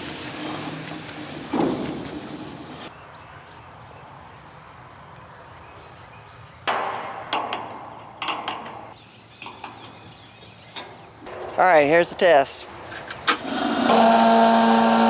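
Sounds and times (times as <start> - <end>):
knocks and clatters: 0.2 - 2.5, 6.7 - 10.0, 10.8 - 13.5.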